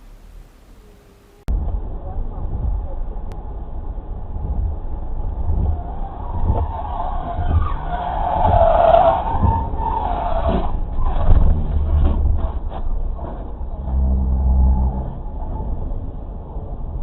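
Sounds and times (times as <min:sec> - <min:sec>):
road rumble: 0:00.0 - 0:17.0
thumps: 0:04.3 - 0:16.2
car tyres skidding: 0:04.4 - 0:16.5.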